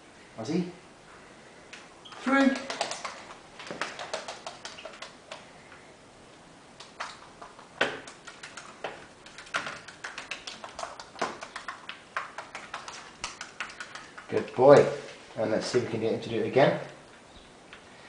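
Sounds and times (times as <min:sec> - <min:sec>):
bird claws tapping on plastic: 0:02.4 - 0:05.5.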